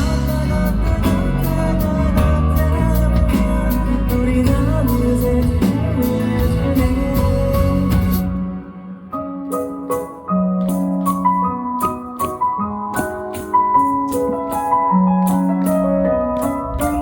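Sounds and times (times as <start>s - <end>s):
bass line: 0.0s - 8.7s
keyboard melody and chords: 0.0s - 17.0s.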